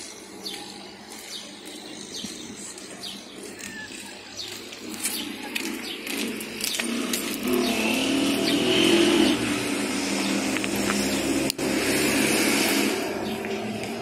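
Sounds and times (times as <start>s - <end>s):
small birds chirping: 0.0s - 14.0s
street murmur: 0.0s - 14.0s
car approaching: 4.7s - 14.0s.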